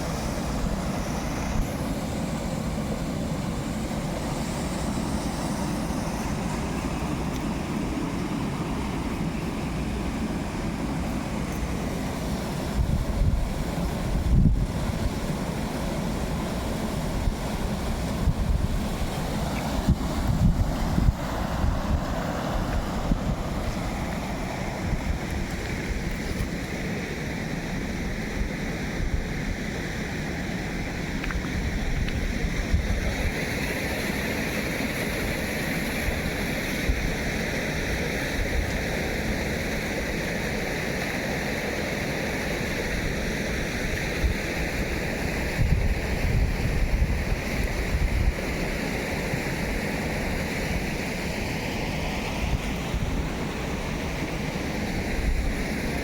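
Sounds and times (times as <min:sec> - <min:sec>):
rushing water: 0:00.0 - 0:56.0
wind buffeting microphone: 0:12.7 - 0:15.3, 0:17.1 - 0:26.2, 0:45.6 - 0:48.5.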